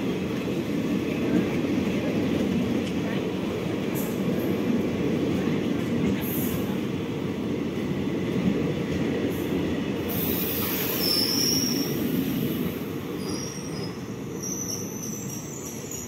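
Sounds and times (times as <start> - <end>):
train wheels rumbling on rails: 0.0 - 16.0
high-pitched wheel squeal: 10.8 - 11.9, 13.2 - 16.0.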